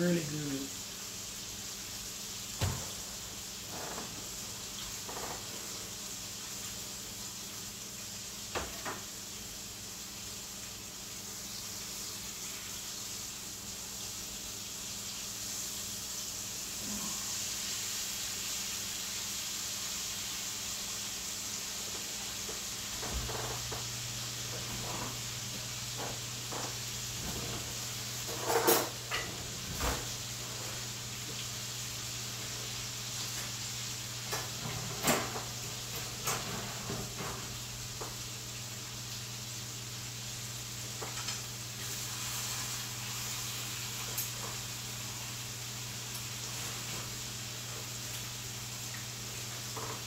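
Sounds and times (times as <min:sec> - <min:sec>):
food sizzling in a skillet: 0:00.0 - 0:50.0.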